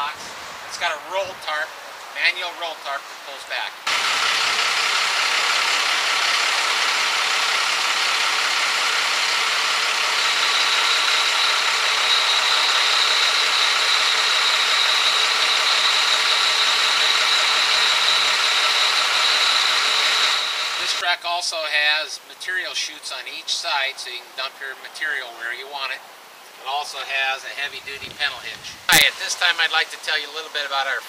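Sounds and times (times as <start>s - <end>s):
diesel truck engine running: 3.9s - 21.0s
steady high whine: 3.9s - 21.0s.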